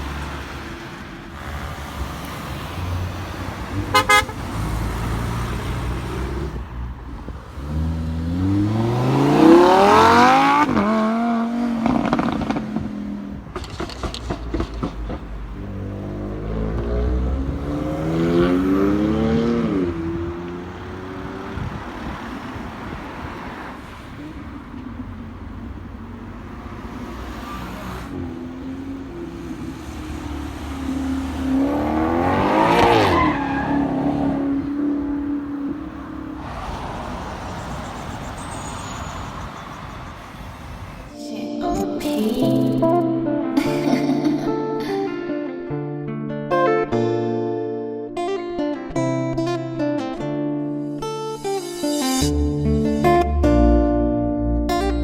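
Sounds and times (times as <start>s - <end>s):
car engines revving: 0.0s - 41.2s
car horn toot: 3.7s - 6.3s, 36.5s - 41.1s
idling engine rumble: 19.9s - 32.1s.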